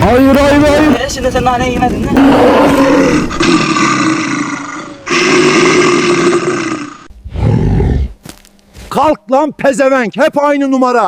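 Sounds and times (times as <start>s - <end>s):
bear roaring: 2.1s - 8.2s.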